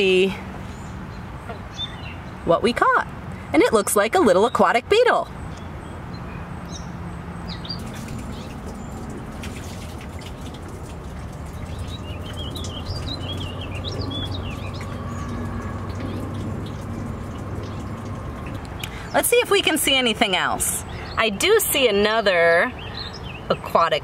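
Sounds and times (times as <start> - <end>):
songbird warbling: 7.5 - 9.3, 11.2 - 19.3.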